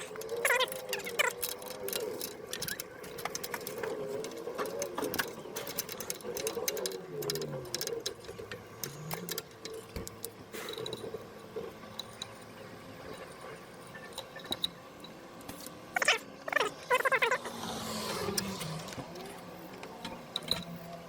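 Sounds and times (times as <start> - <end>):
metal tool clicks and rattles: 0.0 - 11.2.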